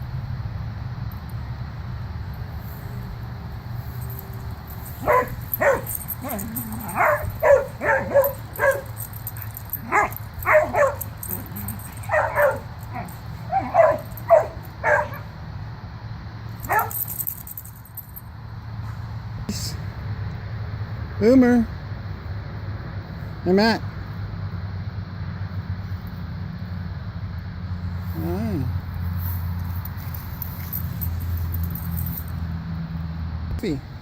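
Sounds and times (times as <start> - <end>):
dog barking in play: 4.2 - 15.4, 16.6 - 17.1.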